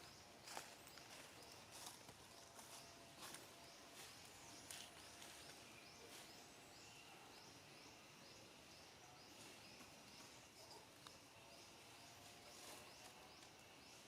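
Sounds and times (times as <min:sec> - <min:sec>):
faint outdoor background: 0:00.0 - 0:14.0.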